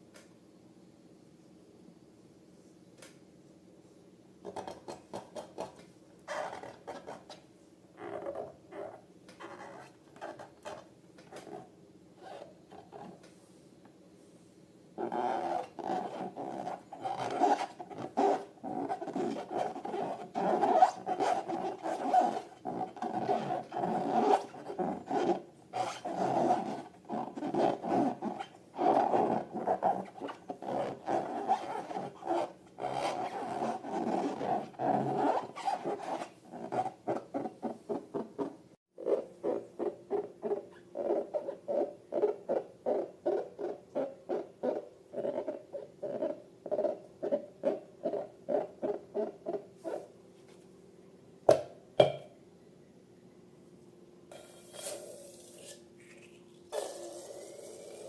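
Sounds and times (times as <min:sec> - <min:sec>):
rubber balloons squeaking: 0:06.3 - 0:07.3, 0:08.0 - 0:13.2, 0:15.0 - 0:50.1.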